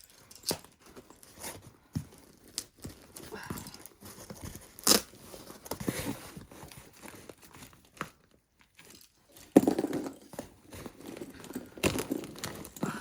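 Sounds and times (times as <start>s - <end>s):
cardboard and tape tearing: 0.0s - 8.8s.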